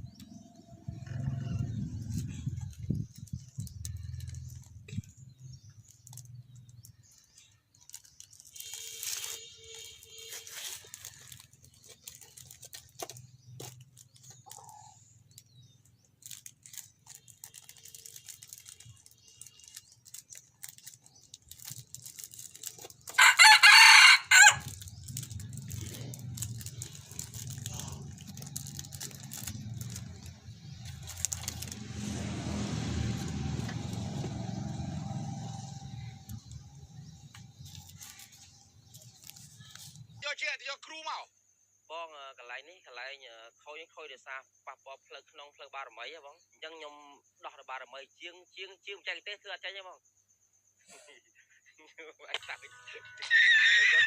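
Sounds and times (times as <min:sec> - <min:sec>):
faint crow-like call: 0:23.2 - 0:24.8
rooster crowing: 0:23.2 - 0:24.8.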